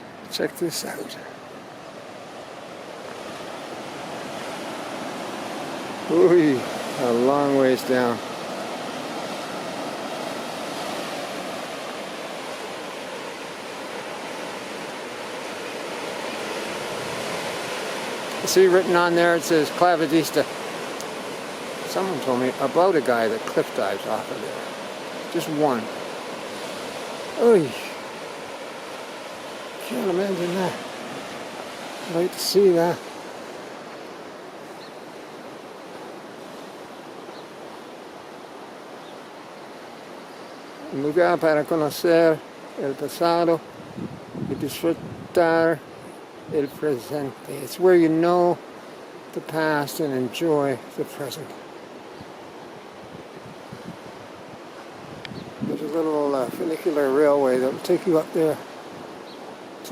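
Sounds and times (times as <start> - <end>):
ocean surf washing: 0.0 - 59.9.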